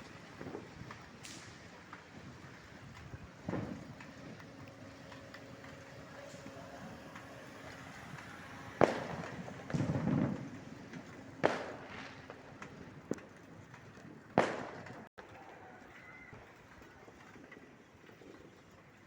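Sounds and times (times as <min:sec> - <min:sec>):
rumbling firework burst: 0:00.0 - 0:15.1
firework bangs with echo: 0:00.3 - 0:15.1
small firework pop: 0:00.4 - 0:02.1, 0:14.4 - 0:15.1.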